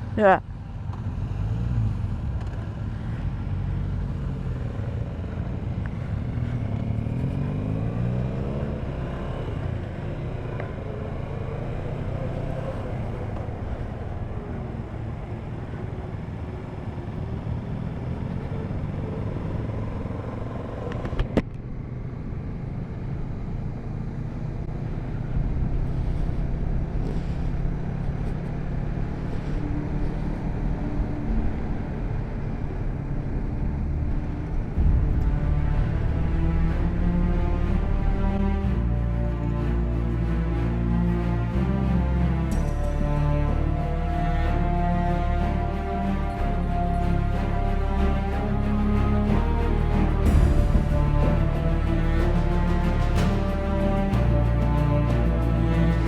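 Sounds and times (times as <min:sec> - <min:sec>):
wind rush: 0:24.7 - 0:41.2.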